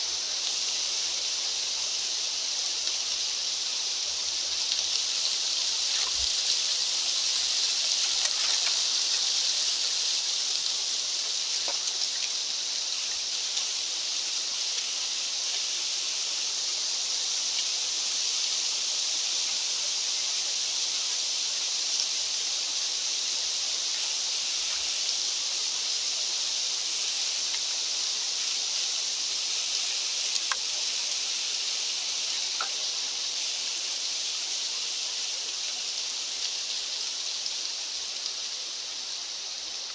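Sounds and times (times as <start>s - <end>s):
steady rushing hiss: 0.0s - 39.9s
faint ticks: 11.2s - 13.8s, 30.2s - 30.9s, 32.3s - 33.0s.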